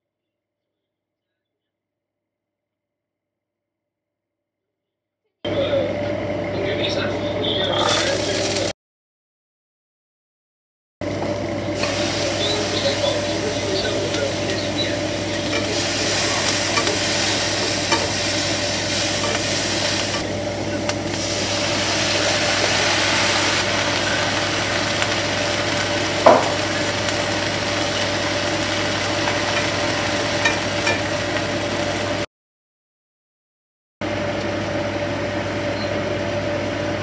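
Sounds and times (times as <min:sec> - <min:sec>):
steady hum: 0:11.0 - 0:32.3
meat sizzling in a frying pan: 0:11.8 - 0:32.2.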